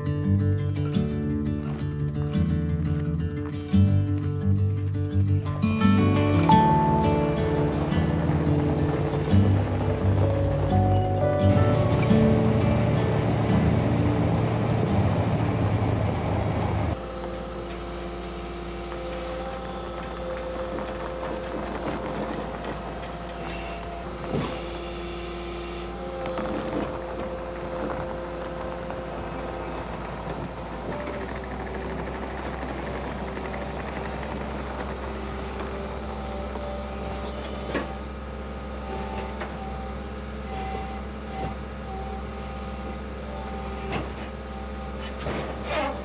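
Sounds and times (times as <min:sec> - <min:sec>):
music: 0:00.0 - 0:16.1, 0:35.2 - 0:46.0
mower engine droning: 0:00.0 - 0:20.0.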